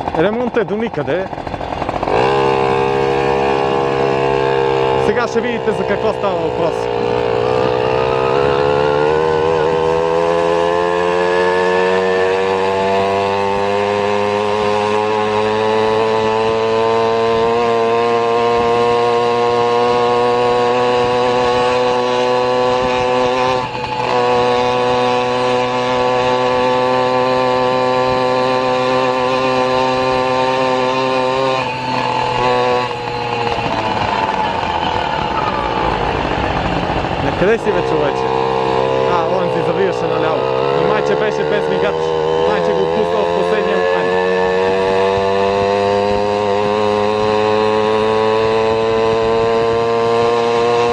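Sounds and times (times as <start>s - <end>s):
vehicle engine droning: 0.0s - 50.9s.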